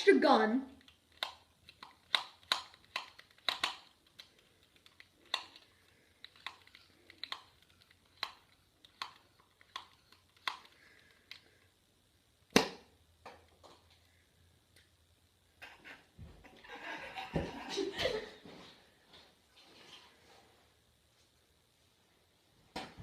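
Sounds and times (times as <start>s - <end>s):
plastic toy blaster clicks: 0.8s - 5.7s, 6.3s - 11.4s.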